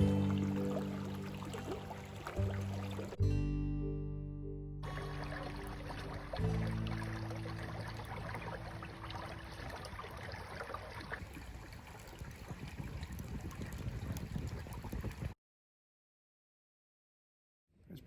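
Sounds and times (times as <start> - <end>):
river water rushing and trickling: 0.0 - 3.2, 4.8 - 15.3.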